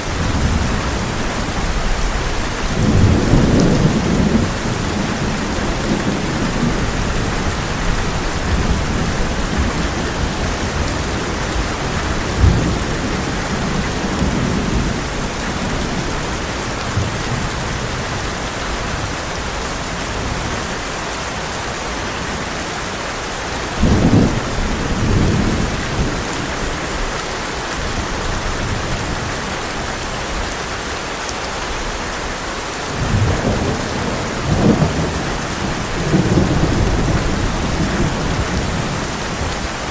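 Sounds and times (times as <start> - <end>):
thunder rumbling: 0.0 - 18.2, 23.8 - 27.0, 32.9 - 39.9
heavy rain on a tin roof: 0.0 - 39.9
thunder clap: 33.0 - 39.6.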